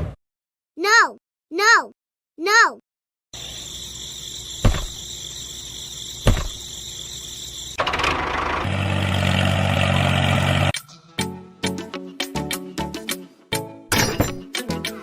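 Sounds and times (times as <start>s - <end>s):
sharp thumps: 4.6s - 5.0s, 6.2s - 6.7s
small engine running: 6.7s - 10.7s.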